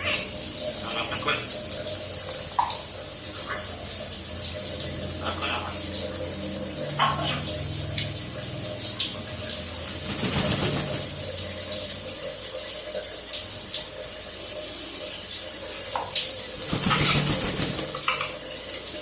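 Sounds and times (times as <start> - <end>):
water running from a tap: 0.0 - 19.0
short water splashes: 6.8 - 12.3, 15.7 - 18.6.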